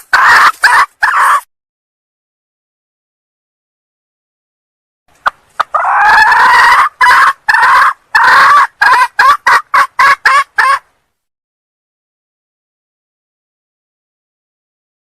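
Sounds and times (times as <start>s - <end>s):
junglefowl calling: 0.0s - 1.5s, 5.2s - 10.8s.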